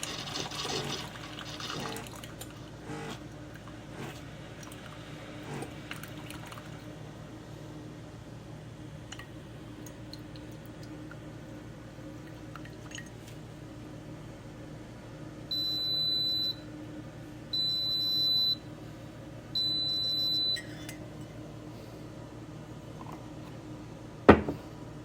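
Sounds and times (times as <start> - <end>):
coffee maker high-pitched beeps: 15.5 - 16.6, 17.6 - 18.7, 19.6 - 20.8.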